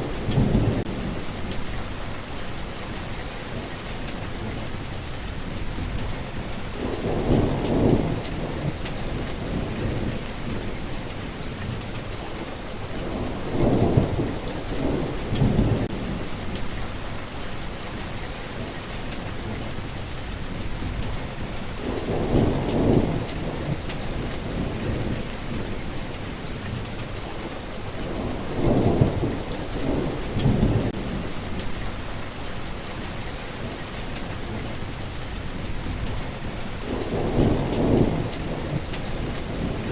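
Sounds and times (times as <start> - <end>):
thunder rumbling: 0.0 - 2.6, 3.8 - 12.1, 12.8 - 17.7, 18.9 - 32.4, 33.2 - 39.9
steady rain falling: 0.0 - 39.9.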